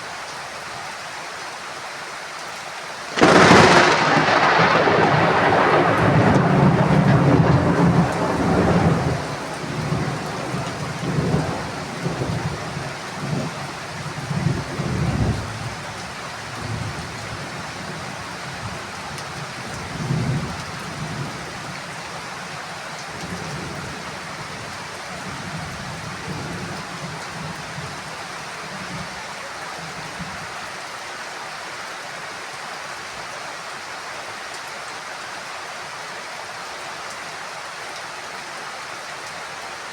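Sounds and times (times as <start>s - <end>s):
heavy rain falling: 0.0s - 39.9s
rolling thunder rumble: 3.2s - 15.8s.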